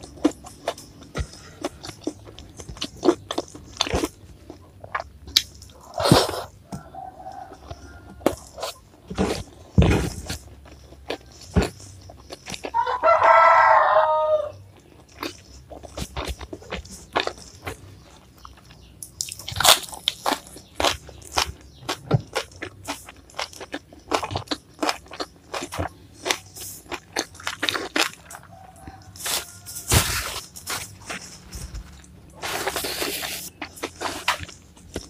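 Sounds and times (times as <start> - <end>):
crunching and chewing vegetables: 0.0 - 35.0
rooster crowing: 6.7 - 8.4, 12.7 - 14.6, 28.2 - 30.4.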